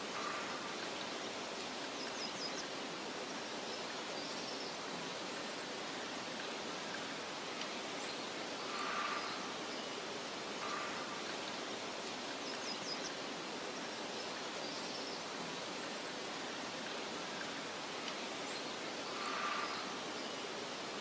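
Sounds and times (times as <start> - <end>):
wind and rustling vegetation: 0.0 - 21.0.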